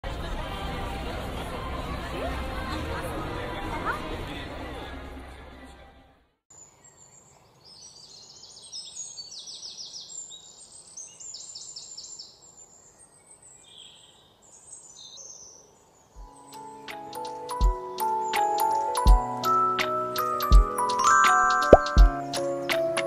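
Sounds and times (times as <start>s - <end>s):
small birds trilling and chirping: 6.5s - 18.7s
music jingle with ticking: 16.2s - 23.0s.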